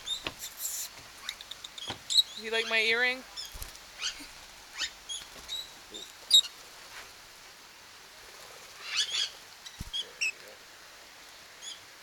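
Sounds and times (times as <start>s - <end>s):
lovebirds chirping: 0.0s - 6.7s, 8.7s - 10.5s, 11.3s - 11.9s.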